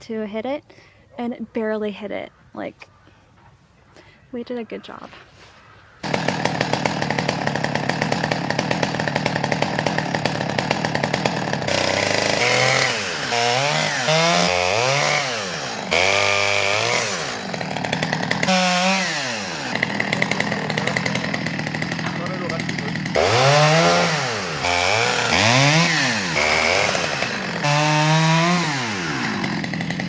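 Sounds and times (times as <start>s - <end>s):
chainsaw revving: 6.0s - 30.0s.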